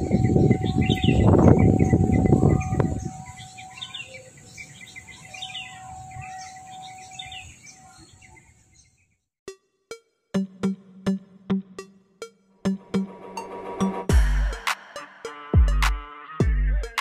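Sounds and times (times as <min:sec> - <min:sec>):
high insect hum: 0:00.0 - 0:08.9
birds chirping: 0:00.0 - 0:09.3.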